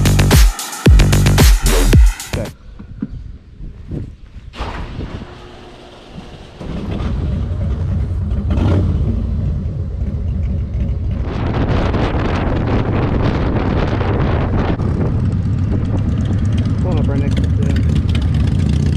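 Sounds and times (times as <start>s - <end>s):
wind rushing over microphone: 2.5s - 17.3s
motorcycle engine running: 5.5s - 18.9s.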